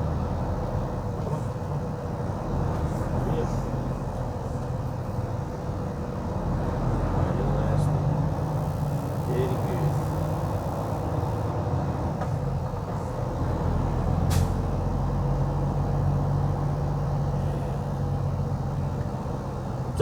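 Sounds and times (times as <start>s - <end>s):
vehicle engine and road noise: 0.0s - 20.0s
short sharp click: 14.3s - 14.6s.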